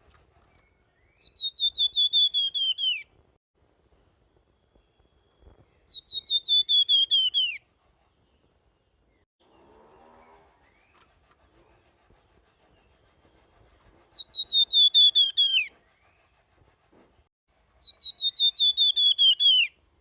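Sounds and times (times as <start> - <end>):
songbird whistling: 0.6 - 3.1, 4.8 - 7.6, 14.1 - 16.2, 17.8 - 19.8.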